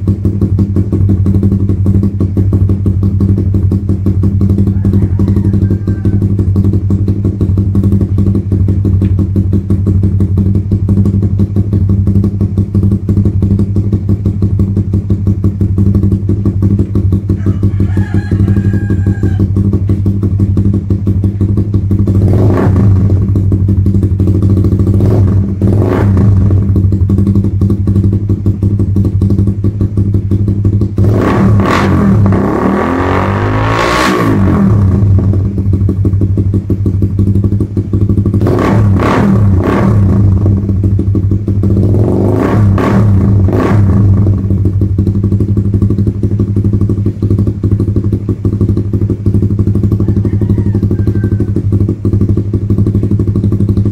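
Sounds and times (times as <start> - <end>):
motorcycle engine idling and revving: 0.0 - 53.9.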